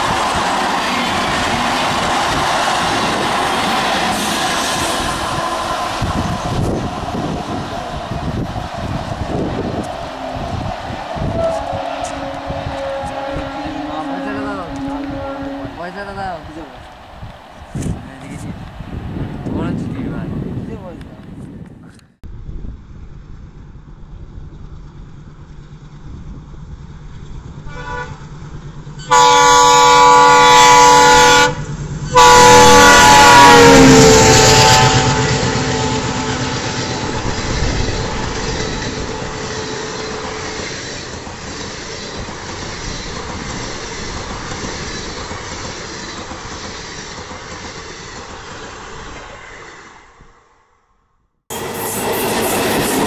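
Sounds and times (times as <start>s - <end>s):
train wheels rumbling on rails: 0.0s - 50.2s, 51.5s - 53.0s
locomotive horn blasts: 9.6s - 16.9s, 27.6s - 28.3s, 29.0s - 40.6s.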